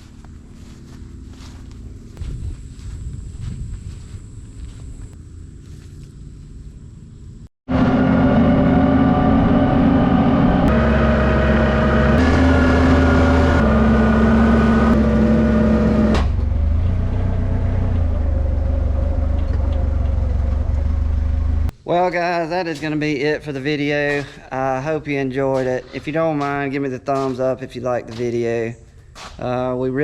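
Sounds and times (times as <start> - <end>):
vehicle engine running: 0.0 - 21.7.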